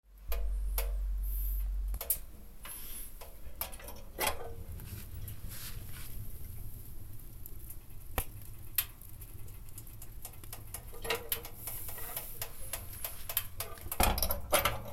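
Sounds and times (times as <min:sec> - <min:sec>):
wood fire crackling: 0:00.1 - 0:14.9.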